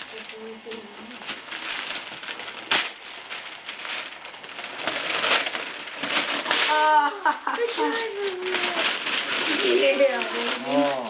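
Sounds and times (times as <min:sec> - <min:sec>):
wrapping paper tearing and crumpling: 0:00.0 - 0:11.0
person exclaiming: 0:06.7 - 0:08.0.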